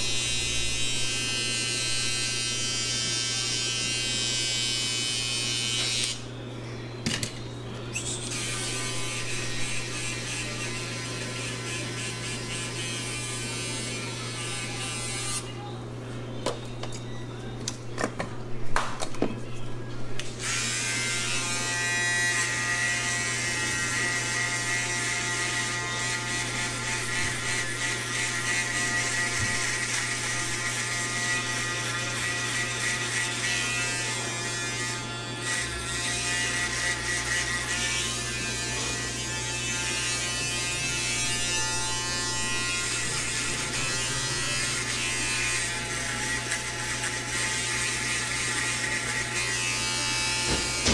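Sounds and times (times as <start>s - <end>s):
electric hair clippers buzzing: 0.0s - 6.4s, 7.3s - 15.7s, 20.2s - 50.9s.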